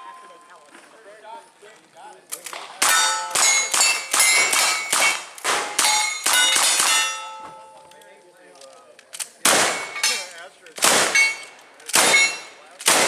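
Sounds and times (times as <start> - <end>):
shots clanging on steel targets: 2.4 - 8.0, 9.2 - 13.0.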